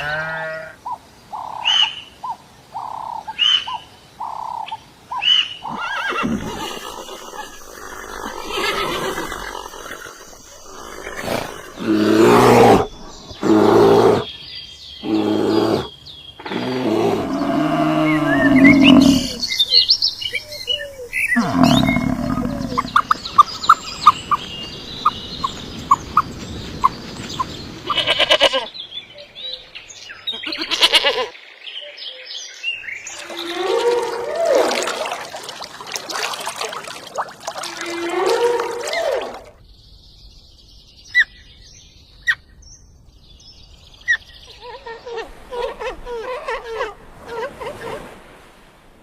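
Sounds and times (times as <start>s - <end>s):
bleat-like call: 30.4s - 31.3s.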